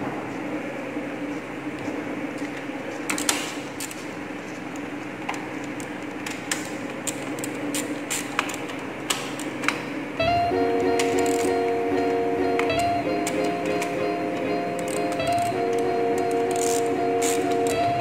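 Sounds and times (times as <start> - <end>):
steady low hum: 10.0 - 18.0
background music: 10.2 - 18.0.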